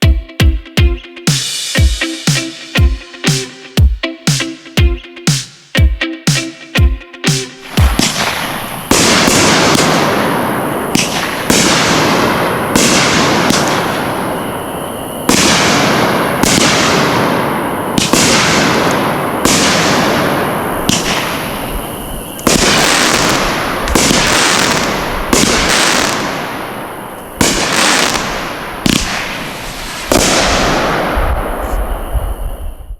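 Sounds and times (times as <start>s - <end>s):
firework bangs: 7.6s - 32.4s.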